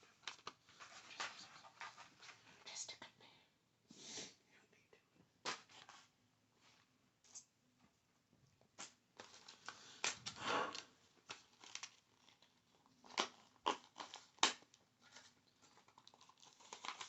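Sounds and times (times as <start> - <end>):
scratchy crinkly rustle: 0.0 - 3.1, 9.2 - 17.0.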